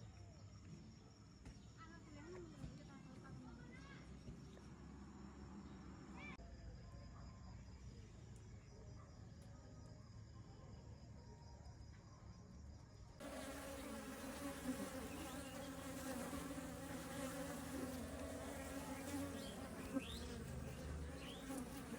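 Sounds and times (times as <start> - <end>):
bees buzzing: 13.2 - 21.9.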